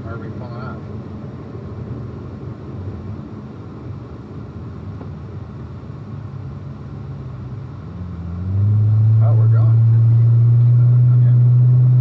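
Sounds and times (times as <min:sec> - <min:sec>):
car engine and road drone: 0:00.0 - 0:12.0.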